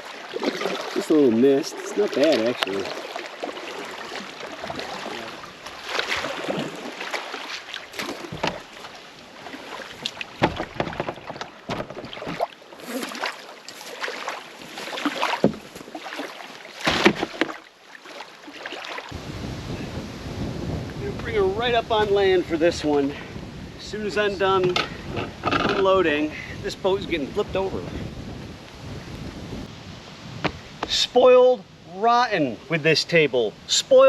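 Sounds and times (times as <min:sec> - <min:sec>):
paddle splashing water: 0:00.0 - 0:19.2.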